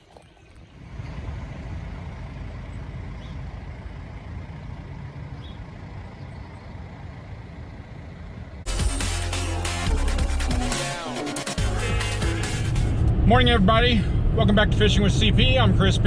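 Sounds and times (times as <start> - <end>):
vehicle driving road noise: 0.0 - 9.8, 12.2 - 16.0.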